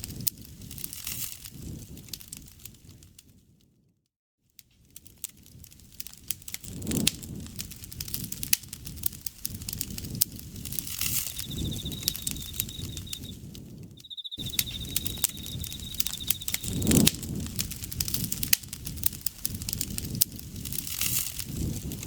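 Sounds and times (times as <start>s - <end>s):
campfire crackling and popping: 4.9s - 22.0s
insect high trill: 10.9s - 13.4s, 14.0s - 17.0s.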